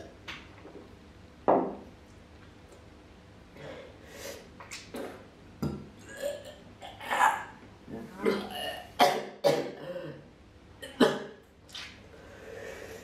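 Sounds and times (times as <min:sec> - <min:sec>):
man breathing hard: 0:12.2 - 0:13.0.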